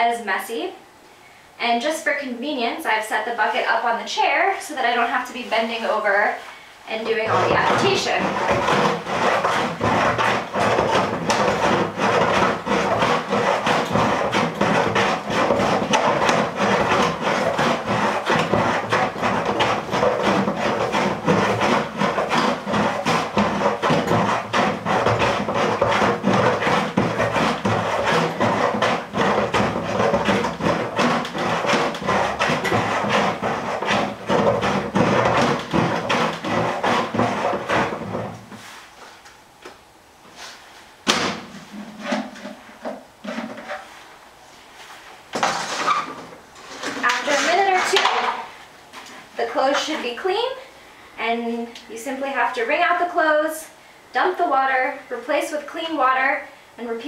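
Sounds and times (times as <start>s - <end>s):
plunger agitating laundry in water: 7.1s - 38.6s, 45.4s - 48.5s.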